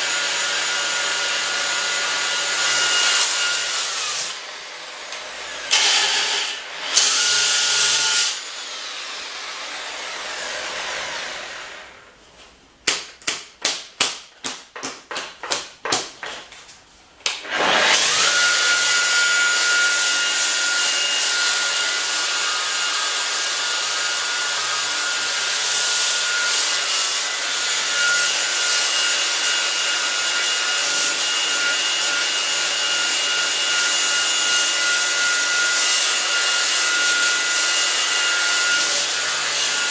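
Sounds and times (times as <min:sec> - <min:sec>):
sharp knocks: 0:12.8 - 0:16.5
power sander grinding metal: 0:17.4 - 0:39.9.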